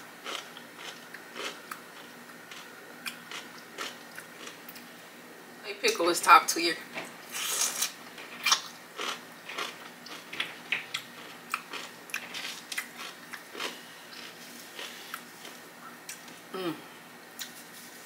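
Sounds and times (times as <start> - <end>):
crunchy pickle chewing: 0.2 - 4.9, 7.3 - 16.4.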